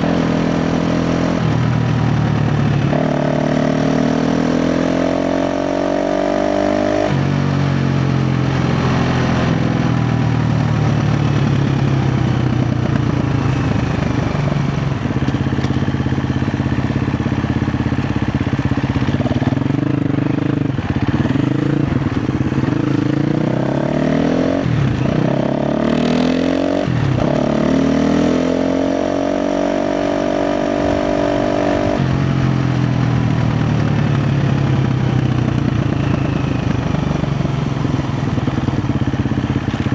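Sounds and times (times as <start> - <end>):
dirt bike engine revving: 18.9 - 32.5.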